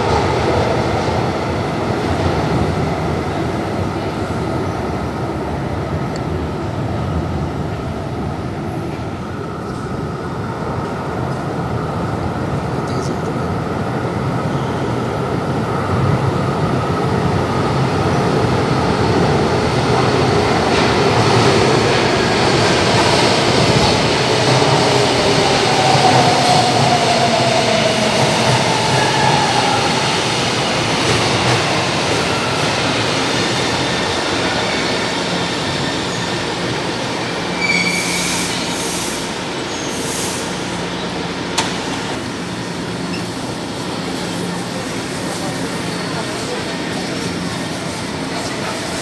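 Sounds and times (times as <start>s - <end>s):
electric train rumbling: 0.0s - 49.0s
wheel squeal: 37.6s - 38.9s.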